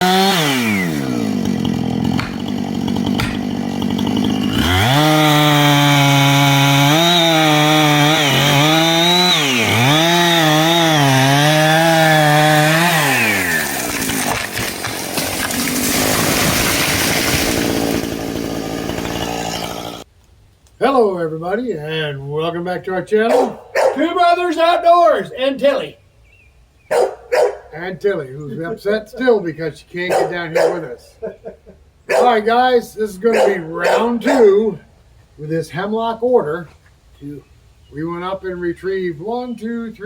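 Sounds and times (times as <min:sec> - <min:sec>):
chainsaw engine revving: 0:00.0 - 0:20.1.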